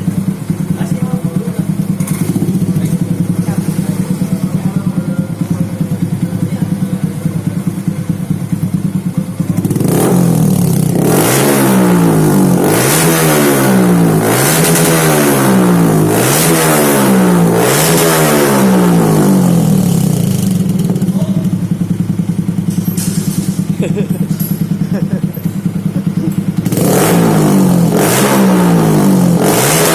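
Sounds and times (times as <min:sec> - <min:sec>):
motorcycle engine idling and revving: 0:00.0 - 0:29.9.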